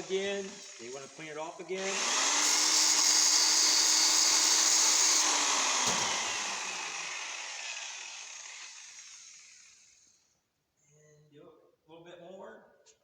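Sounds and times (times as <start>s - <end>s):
rotary polisher whirring: 0.0s - 10.1s.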